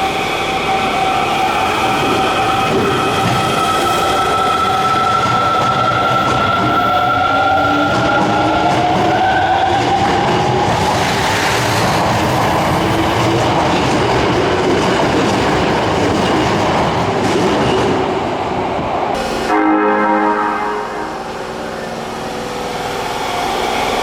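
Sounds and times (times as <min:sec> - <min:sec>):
train wheels clattering on rail: 0:01.4 - 0:18.7.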